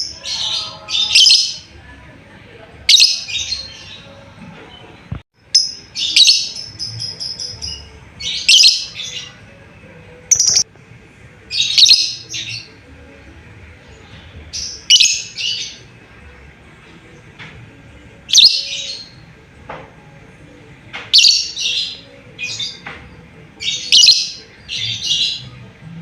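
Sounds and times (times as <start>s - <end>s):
lovebird shrill chirps: 10.3s - 10.6s.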